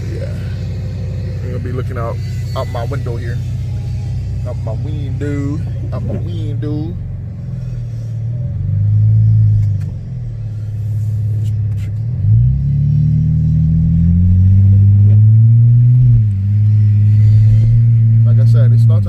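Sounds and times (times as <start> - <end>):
car engine from inside cabin: 0.0 - 19.0.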